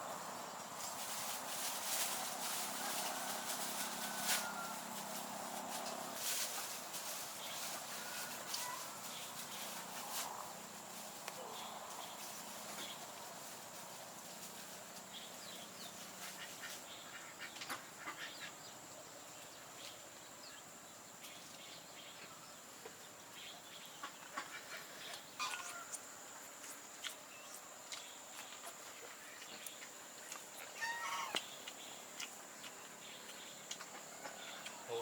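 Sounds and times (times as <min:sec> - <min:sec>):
chickens clucking: 0:24.0 - 0:26.0.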